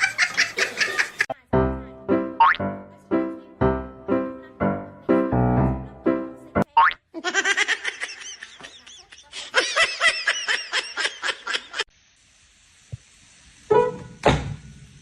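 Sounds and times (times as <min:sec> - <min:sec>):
person laughing: 0:00.0 - 0:01.3, 0:07.2 - 0:11.9.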